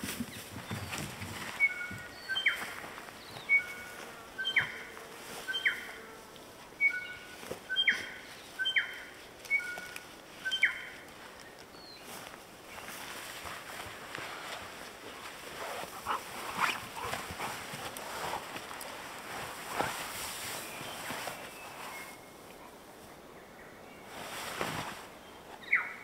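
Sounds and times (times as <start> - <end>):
songbird whistling: 1.6 - 2.6, 5.5 - 5.8, 6.8 - 9.8, 10.4 - 10.9.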